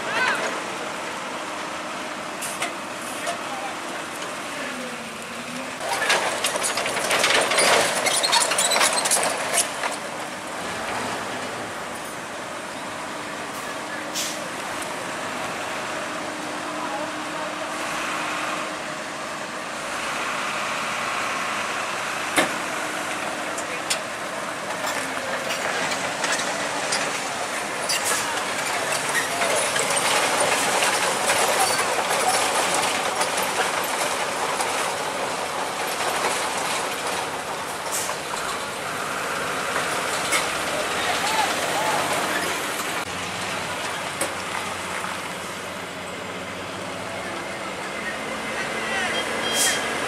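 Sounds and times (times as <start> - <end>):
people's voices: 0.0 - 1.3, 2.4 - 6.3, 12.8 - 18.1, 23.2 - 34.2, 39.8 - 50.0
heavy machinery engine running: 0.0 - 50.0.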